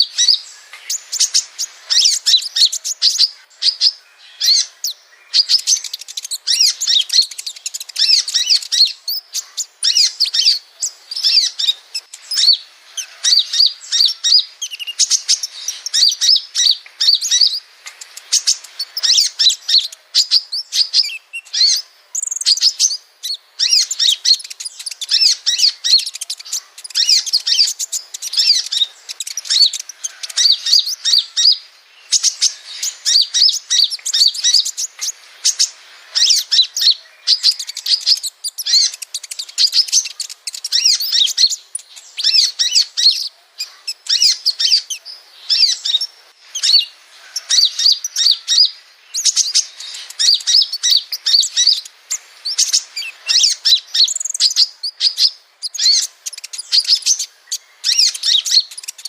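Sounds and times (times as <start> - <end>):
bird twittering: 0.0 - 59.0.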